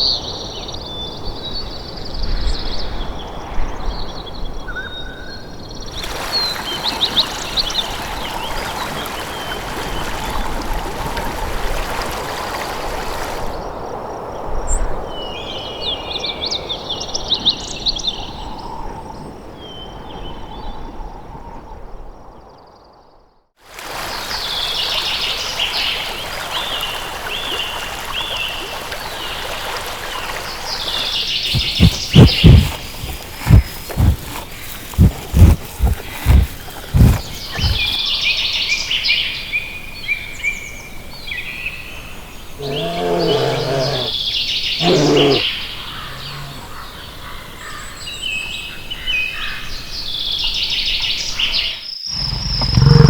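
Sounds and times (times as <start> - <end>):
flowing water: 6.0 - 13.6, 23.6 - 38.0
small birds chirping: 29.2 - 38.2, 40.1 - 49.6, 50.3 - 53.0
low thumps: 31.5 - 38.0.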